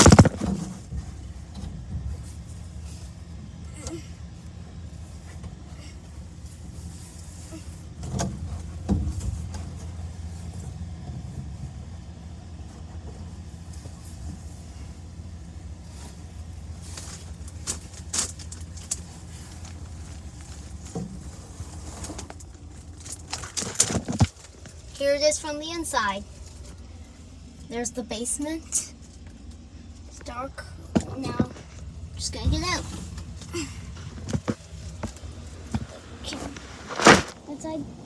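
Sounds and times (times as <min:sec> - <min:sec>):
sharp knocks and bumps: 0:00.0 - 0:00.9, 0:32.4 - 0:37.4
low machine hum: 0:00.0 - 0:38.0.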